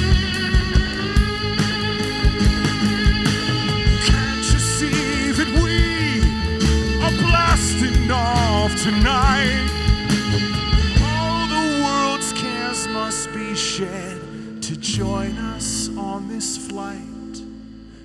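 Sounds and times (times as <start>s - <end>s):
drums: 0.0s - 12.0s
rock band playing: 0.0s - 13.2s.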